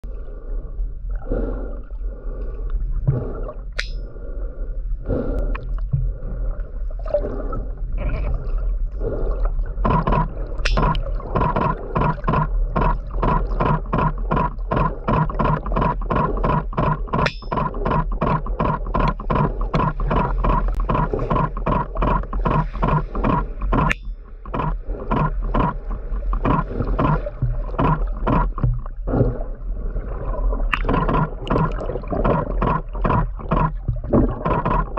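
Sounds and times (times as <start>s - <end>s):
steady low hum: 0.0s - 34.9s
whale clicking underwater: 9.0s - 34.9s.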